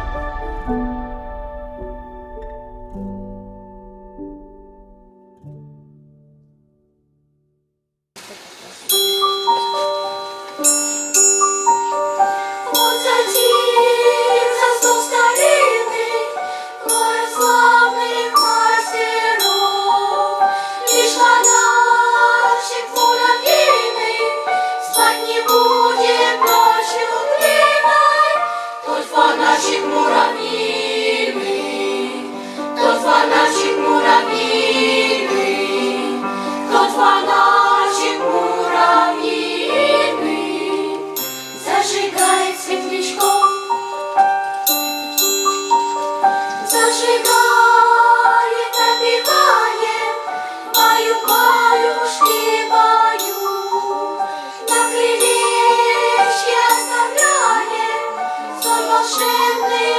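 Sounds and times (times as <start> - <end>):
children's choir singing: 0.0 - 1.7, 11.4 - 44.5, 45.4 - 59.9
instrumental accompaniment: 8.9 - 59.9.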